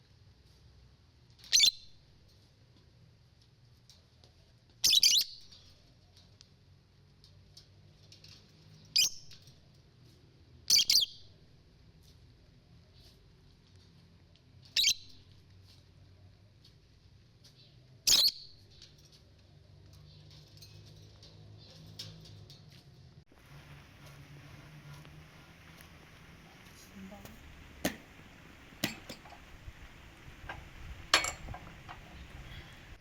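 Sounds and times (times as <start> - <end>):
bird chirping: 10.7 - 11.3, 14.8 - 15.3, 17.6 - 18.8.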